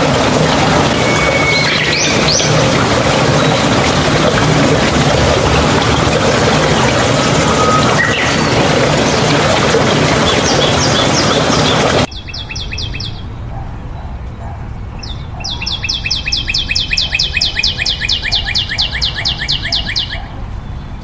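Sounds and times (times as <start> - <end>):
pouring splashing water: 0.0 - 12.1.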